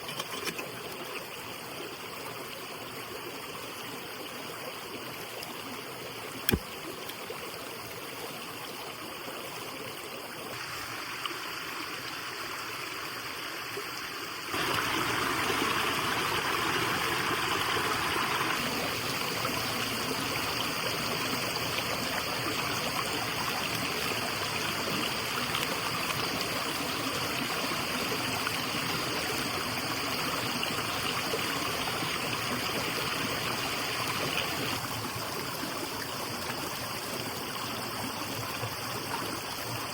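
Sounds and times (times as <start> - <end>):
running water rushing: 4.7 - 39.9.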